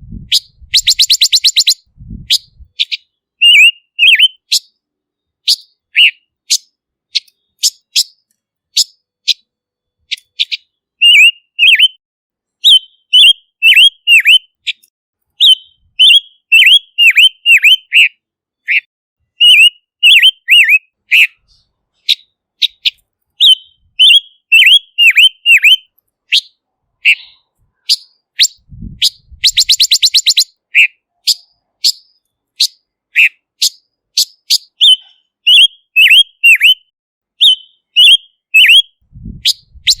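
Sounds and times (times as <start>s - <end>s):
fast rattling bird trill: 0.3s - 4.7s, 5.5s - 8.2s, 19.4s - 36.8s, 39.4s - 40.0s
bird calling sharp notes: 0.3s - 4.8s, 5.4s - 8.2s, 10.1s - 12.0s, 12.6s - 36.8s, 37.4s - 40.0s.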